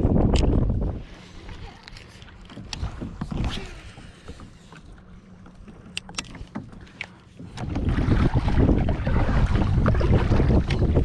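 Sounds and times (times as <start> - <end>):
wind gusts on microphone: 0.0 - 2.0, 7.6 - 11.0
low wind rumble: 0.0 - 5.2, 6.2 - 11.0
water around a kayak: 0.0 - 11.0
small sharp clicks and knocks: 5.8 - 7.2.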